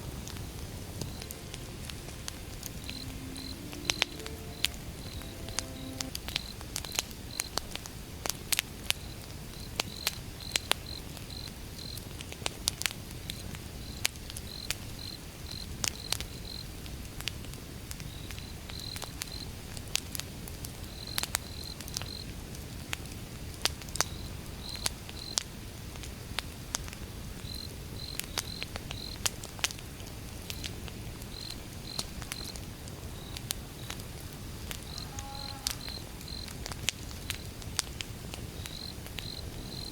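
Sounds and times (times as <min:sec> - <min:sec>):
crickets chirping: 0:00.4 - 0:06.6, 0:34.8 - 0:36.5, 0:38.6 - 0:39.9
wood fire crackling: 0:36.4 - 0:39.9.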